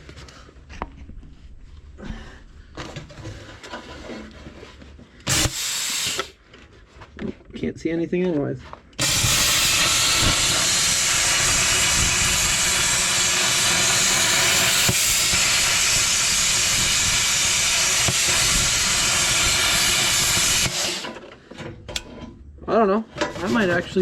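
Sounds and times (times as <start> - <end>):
plasma cutter hissing: 5.3 - 6.4, 9.0 - 21.2.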